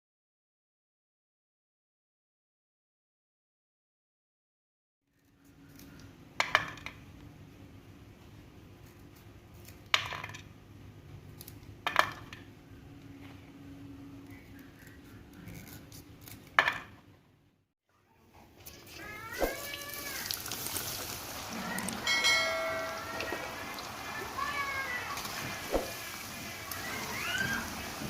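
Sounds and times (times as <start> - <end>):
utensils clinking on cookware: 21.6 - 24.6.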